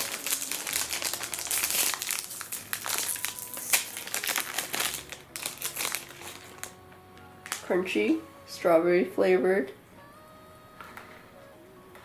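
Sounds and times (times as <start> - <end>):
plastic wrapper crinkling: 0.0 - 7.8.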